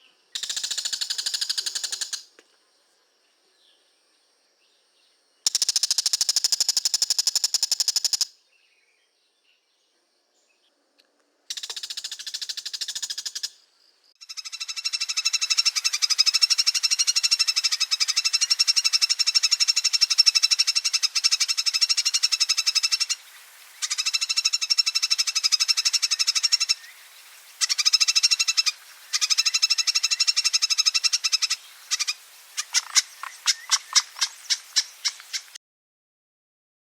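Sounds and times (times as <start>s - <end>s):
bird rattling chatter: 31.4s - 35.6s.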